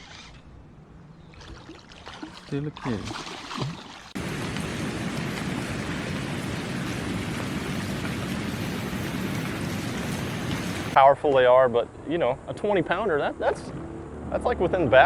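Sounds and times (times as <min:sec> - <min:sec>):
steady rushing noise: 0:04.2 - 0:11.1.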